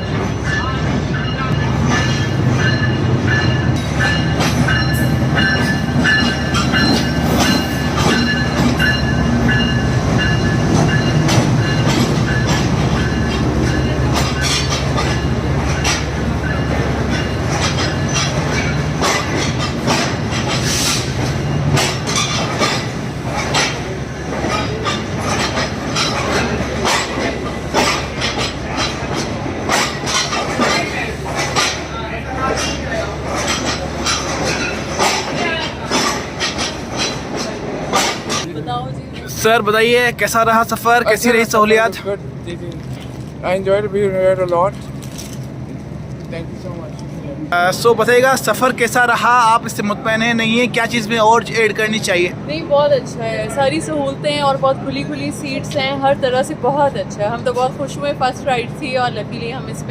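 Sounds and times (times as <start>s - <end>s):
train rumbling on rails: 0.0s - 59.9s
wheels clattering over track: 1.8s - 38.5s.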